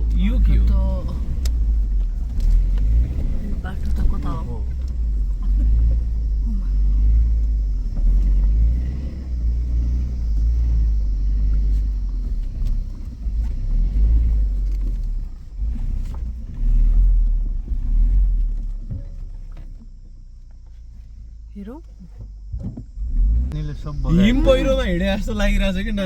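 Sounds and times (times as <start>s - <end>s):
engine and suspension rumble: 0.0s - 26.0s.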